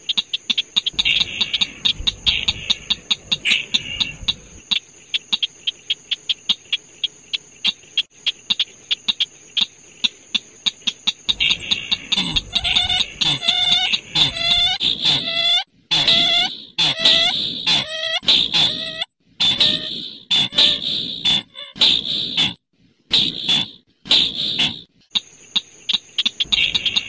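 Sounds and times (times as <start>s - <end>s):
harsh bird calls: 0.0s - 9.7s, 11.3s - 25.2s, 25.8s - 27.0s
sharp ticking clicks: 0.0s - 9.7s, 24.4s - 27.0s.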